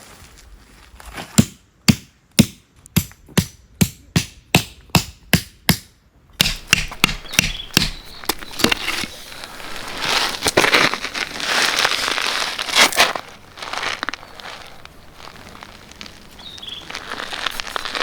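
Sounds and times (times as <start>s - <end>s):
rustling crackling noise: 7.9s - 18.0s.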